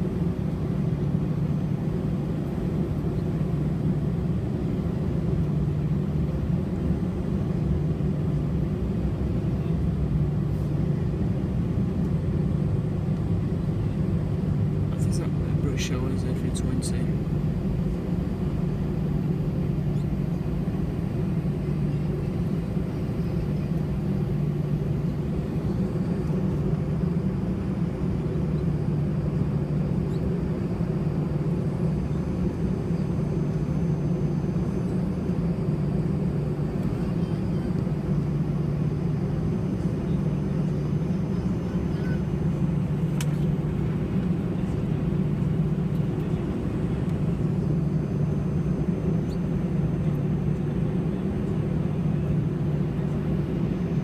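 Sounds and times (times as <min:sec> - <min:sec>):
cabin air running: 0:00.0 - 0:54.0
jet engines idling: 0:00.0 - 0:54.0
faint click: 0:43.1 - 0:43.5.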